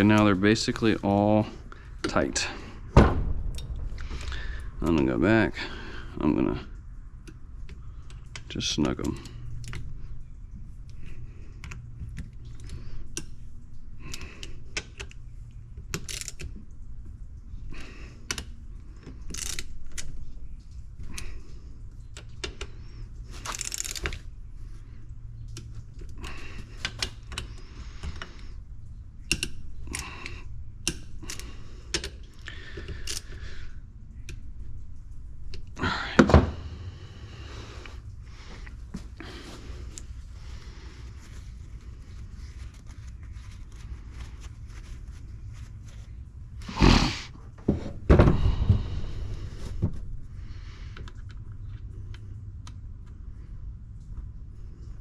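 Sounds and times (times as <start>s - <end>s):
loud knock: 3.0s - 4.6s.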